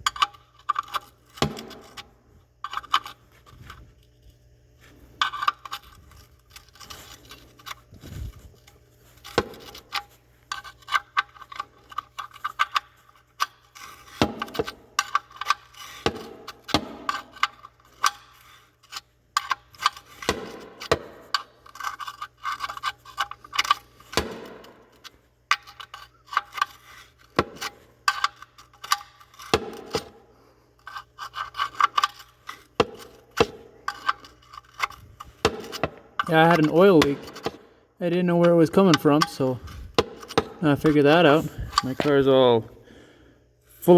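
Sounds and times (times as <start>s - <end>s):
metal tools clicking and rattling: 9.1s - 30.2s, 30.8s - 37.6s, 38.4s - 42.5s.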